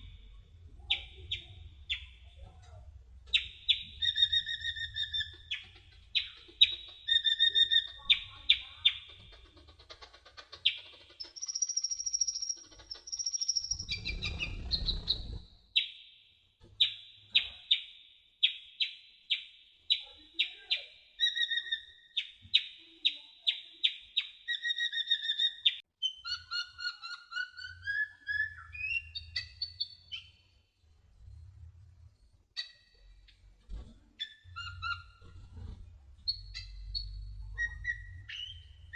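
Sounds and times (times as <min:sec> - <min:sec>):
bird singing sharp chirps: 0:10.7 - 0:16.0.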